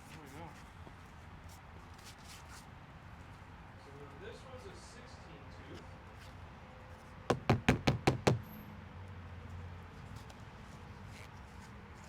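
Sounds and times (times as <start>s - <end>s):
quick sharp knocks: 7.3s - 8.5s.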